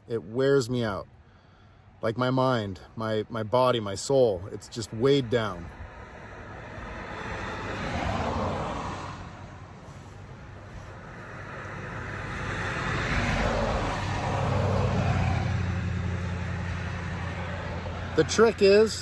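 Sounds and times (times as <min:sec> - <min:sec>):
vehicles passing: 0:00.0 - 0:19.0
low engine hum: 0:05.7 - 0:19.0.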